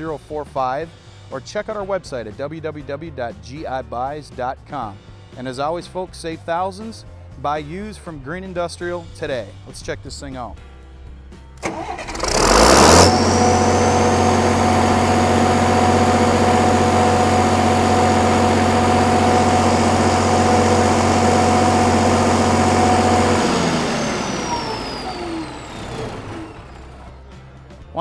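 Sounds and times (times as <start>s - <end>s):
diesel generator engine running: 11.6s - 27.6s
high turbocharger whine: 11.7s - 27.2s.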